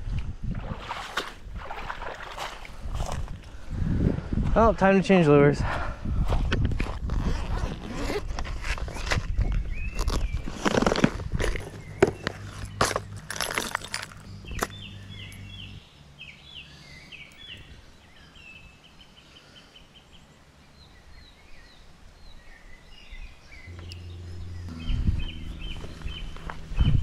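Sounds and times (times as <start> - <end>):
small birds singing: 7.2 - 27.0
low steady hum: 11.3 - 17.0, 23.6 - 27.0.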